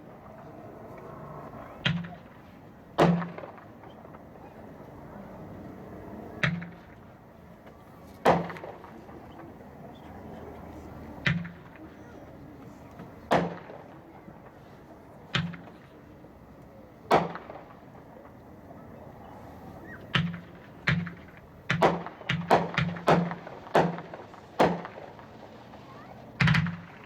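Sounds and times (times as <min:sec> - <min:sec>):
fireworks bangs: 0:20.2 - 0:27.0.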